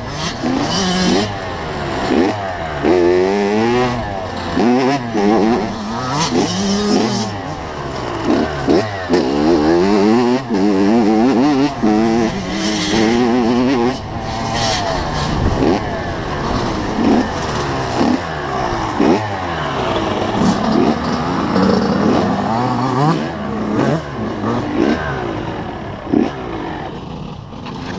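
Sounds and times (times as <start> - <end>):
two-stroke motocross engine revving: 0.0 - 27.9.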